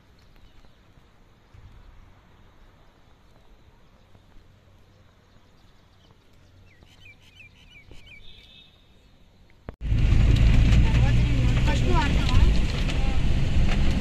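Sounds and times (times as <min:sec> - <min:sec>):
faint outdoor background noise: 0:00.0 - 0:14.0
small bird chirping: 0:00.2 - 0:09.4.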